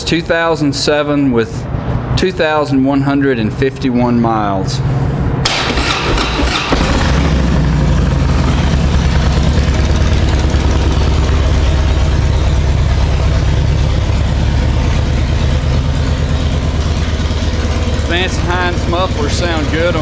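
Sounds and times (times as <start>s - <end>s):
motorcycle engine starting and idling: 5.0s - 20.0s.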